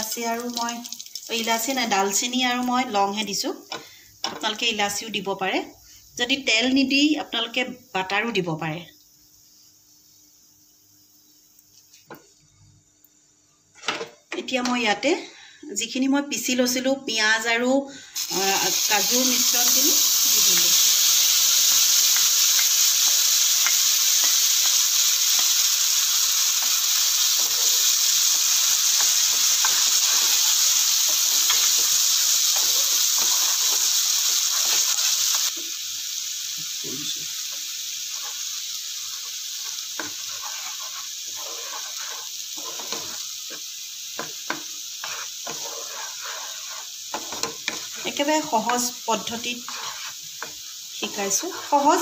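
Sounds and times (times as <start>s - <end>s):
paste sizzling in hot oil: 0.0s - 6.2s, 17.5s - 52.0s
wooden spatula scraping and tapping: 29.0s - 30.4s, 39.1s - 43.6s, 44.2s - 48.9s, 49.6s - 52.0s.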